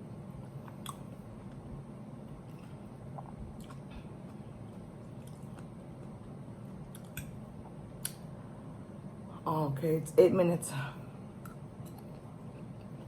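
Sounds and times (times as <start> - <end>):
person chewing food: 0.4 - 8.3, 11.4 - 13.0
soft mouth clicks: 8.0 - 8.2.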